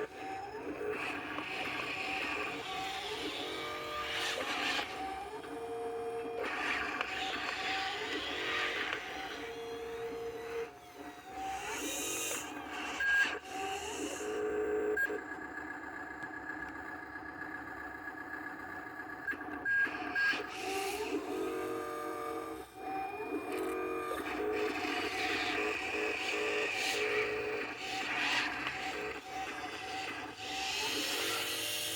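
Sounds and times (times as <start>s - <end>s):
whining tones: 0.0s - 31.9s.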